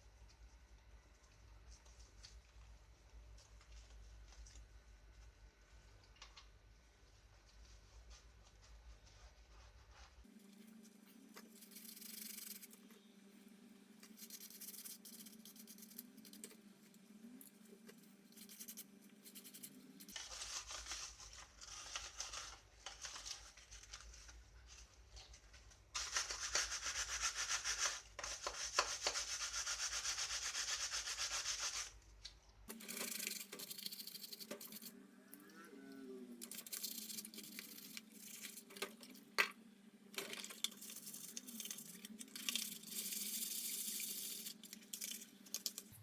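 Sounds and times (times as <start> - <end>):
hand sanding strokes: 26.0 - 31.9.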